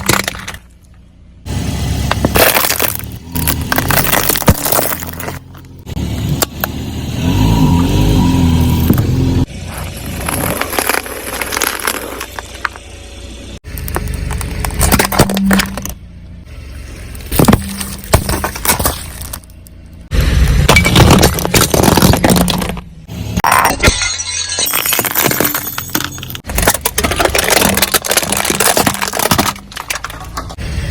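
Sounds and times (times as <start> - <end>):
objects crunching under car tyres: 0.0 - 1.3, 2.0 - 30.9
rolling car rumble: 0.0 - 30.9
glass breaking and clinking: 17.3 - 19.5, 20.7 - 22.8, 23.4 - 30.6.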